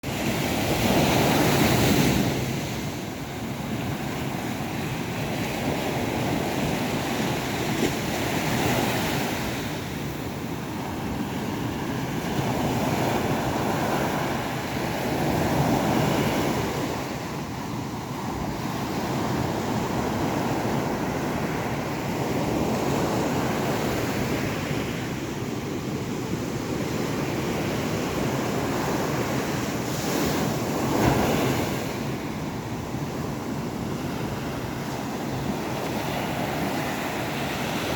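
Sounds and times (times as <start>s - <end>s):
sea waves breaking: 26.7s - 37.9s.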